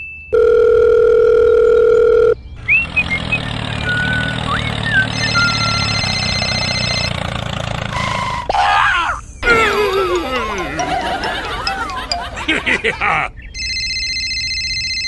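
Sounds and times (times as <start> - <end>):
telephone dial tone: 0.4 - 2.4.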